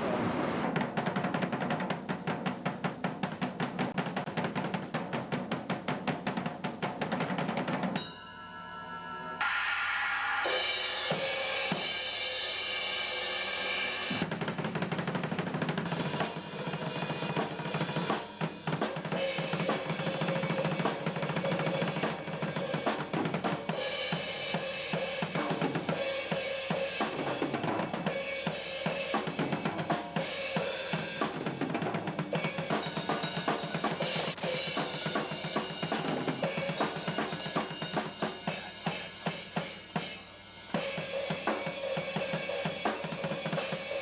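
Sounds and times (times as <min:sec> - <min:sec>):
fast drumming on drum kit: 0:00.0 - 0:08.0, 0:14.1 - 0:44.0
cymbal ringing: 0:08.0 - 0:14.2.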